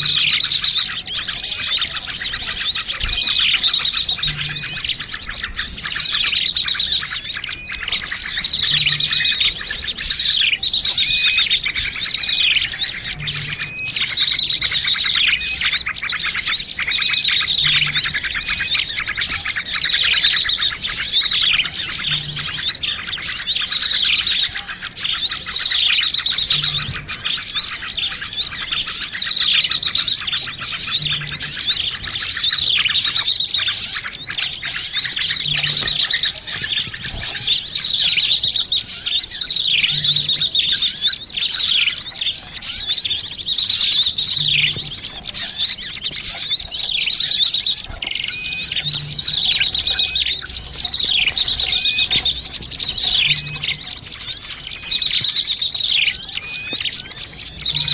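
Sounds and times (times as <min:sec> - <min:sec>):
songbirds chirping chorus: 0:00.0 - 0:57.9.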